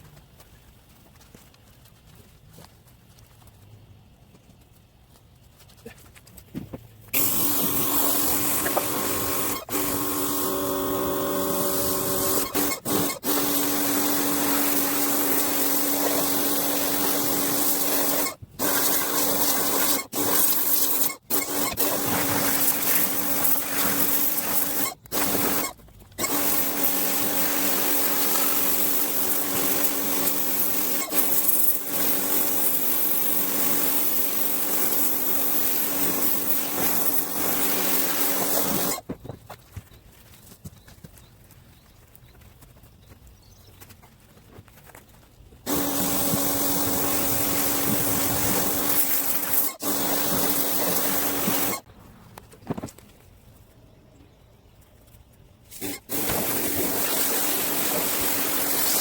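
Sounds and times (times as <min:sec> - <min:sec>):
pressure washer motor hum: 0:07.2 - 0:39.0, 0:45.7 - 0:51.8, 0:55.8 - 0:59.0
water spray hissing: 0:07.2 - 0:39.0, 0:45.7 - 0:51.9, 0:55.7 - 0:59.0.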